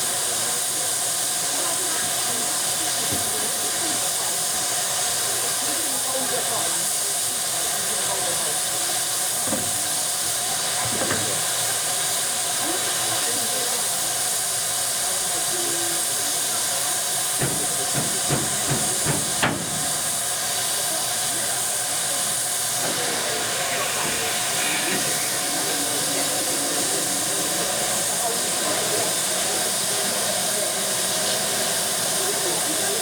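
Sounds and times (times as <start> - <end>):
steam hissing: 0.0 - 33.0
knocks and clanks: 17.4 - 20.0.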